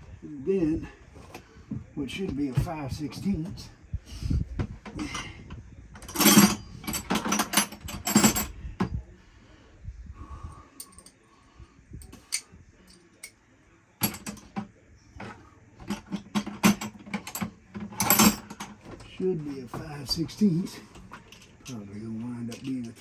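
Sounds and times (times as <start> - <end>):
metal tools clinking: 4.9 - 5.4, 6.0 - 8.5, 10.8 - 11.2, 12.0 - 13.4, 14.0 - 23.0.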